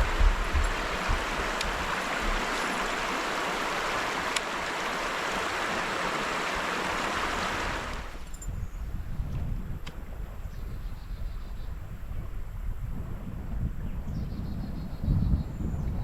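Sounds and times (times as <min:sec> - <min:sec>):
river water rushing over rocks: 0:00.0 - 0:08.2.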